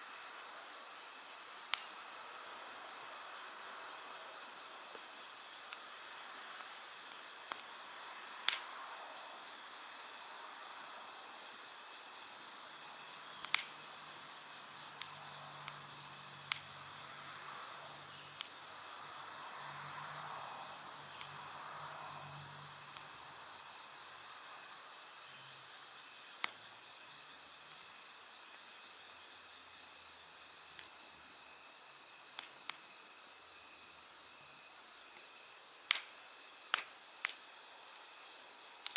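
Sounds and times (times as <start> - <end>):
insects trilling: 0.0 - 38.9
campfire crackling and popping: 1.6 - 2.0, 4.9 - 9.4, 13.2 - 19.1, 20.8 - 21.6, 22.5 - 23.3, 26.3 - 26.7, 30.6 - 31.0, 32.2 - 32.9, 35.1 - 38.1.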